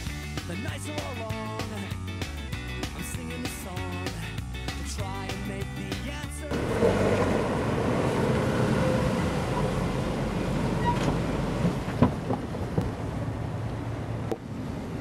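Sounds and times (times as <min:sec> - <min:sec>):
car engine running: 0:06.1 - 0:15.0.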